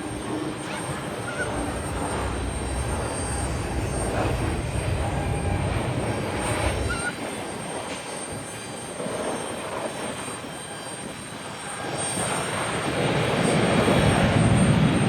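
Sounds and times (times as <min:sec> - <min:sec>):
jet engines idling: 0:00.0 - 0:10.1.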